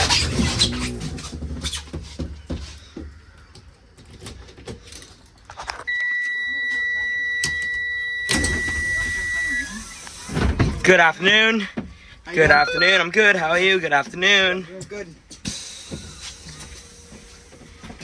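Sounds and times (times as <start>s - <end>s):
high-pitched warning buzzer: 5.9s - 10.1s.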